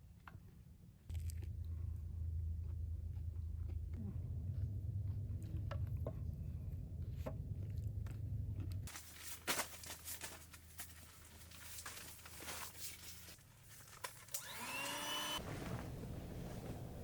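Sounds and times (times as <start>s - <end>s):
crunchy chewing of pizza crust: 0.0s - 9.0s
steady low hum: 0.0s - 13.7s, 14.4s - 17.0s.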